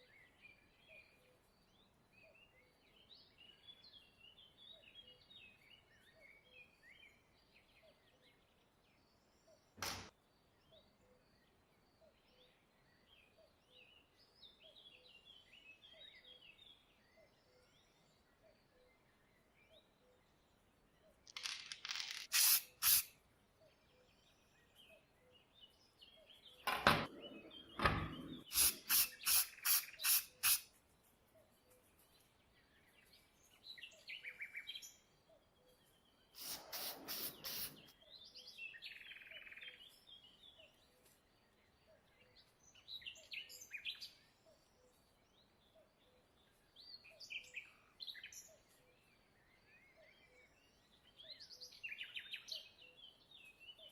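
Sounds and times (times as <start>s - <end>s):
small birds chirping: 0.0s - 53.9s
short noisy hand strokes: 36.4s - 37.9s.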